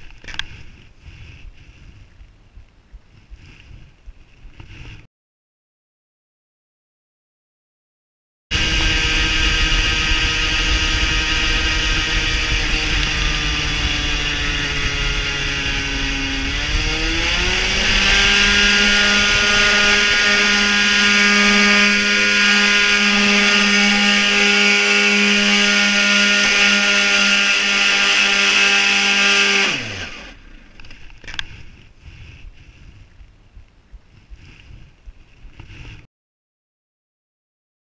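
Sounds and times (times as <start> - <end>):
two-stroke engine running: 8.5 - 31.8.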